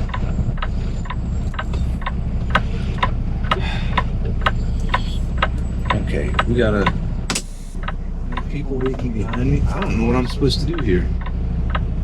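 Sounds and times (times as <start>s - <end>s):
diesel truck engine idling: 0.0s - 12.0s
flasher relay ticking: 0.0s - 12.0s.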